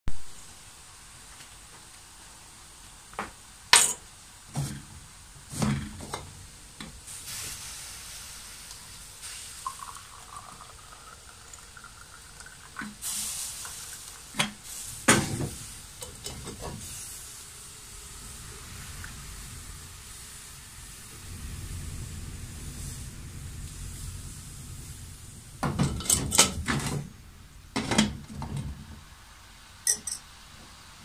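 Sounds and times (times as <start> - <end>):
faint steady hiss: 0.1 - 31.0
dishes clinking and knocking: 14.4 - 16.8, 25.6 - 27.1, 27.8 - 28.9, 29.9 - 30.3.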